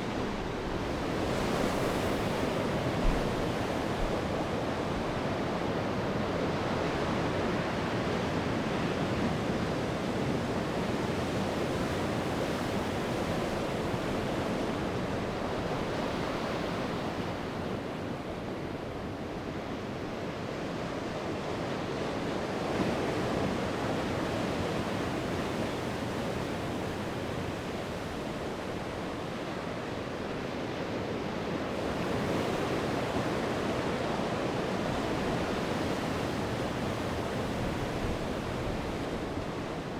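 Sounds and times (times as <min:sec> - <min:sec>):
wind on microphone: 0:00.0 - 0:06.3
sea waves breaking on shore: 0:00.0 - 0:39.9.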